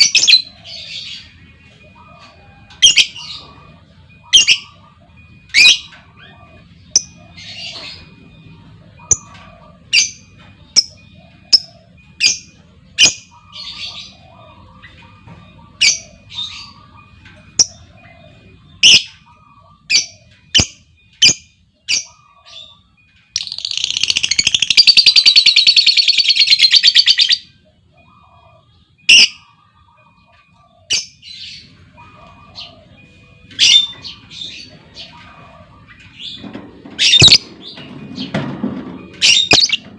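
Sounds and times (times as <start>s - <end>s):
lovebird chirping: 15.6s - 28.4s, 37.0s - 37.6s
lovebird rapid chattering trill: 23.4s - 27.4s.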